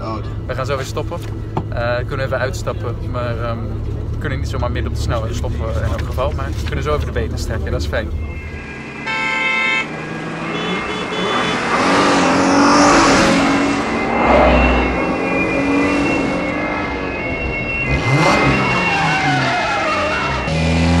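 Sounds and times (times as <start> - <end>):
car engines revving: 0.0 - 21.0
car sweeping past: 9.8 - 19.4.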